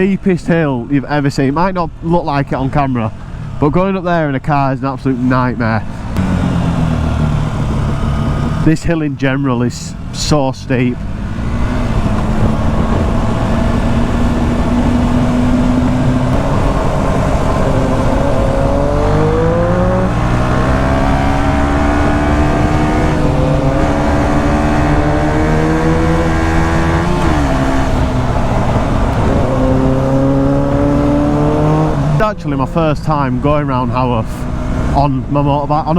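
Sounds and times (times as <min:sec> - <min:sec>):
motorcycle engine revving: 0:05.8 - 0:08.8, 0:10.8 - 0:35.4.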